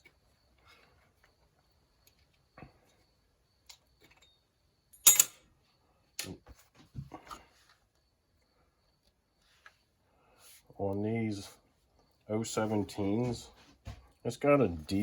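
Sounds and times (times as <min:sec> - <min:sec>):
metal parts clicking and knocking: 0:05.0 - 0:05.4
sharp metal clack: 0:05.0 - 0:05.4.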